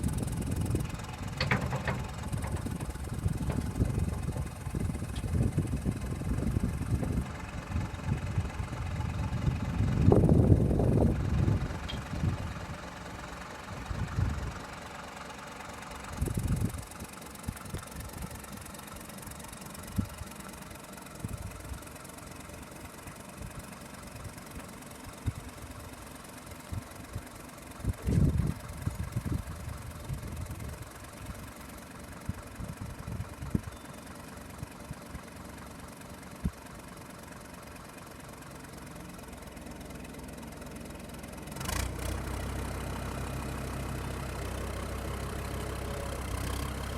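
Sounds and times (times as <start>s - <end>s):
tractor diesel engine idling: 0.0s - 46.9s
low thumps: 1.4s - 5.7s.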